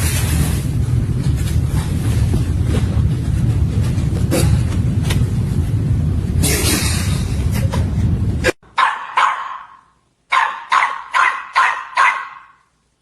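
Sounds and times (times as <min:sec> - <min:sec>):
steady rumbling with clicks: 0:00.0 - 0:08.6
dog barking: 0:08.8 - 0:12.7.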